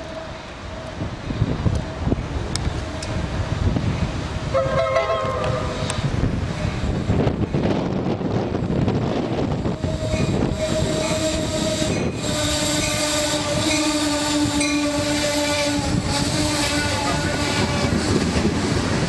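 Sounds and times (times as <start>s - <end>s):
train passing with rumble: 0.0s - 19.0s
train horn chord: 4.5s - 5.9s, 9.8s - 18.5s.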